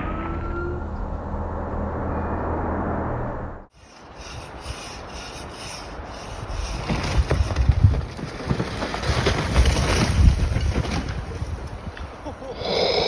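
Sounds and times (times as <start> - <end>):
wind buffeting microphone: 4.0 - 8.7, 9.4 - 12.2.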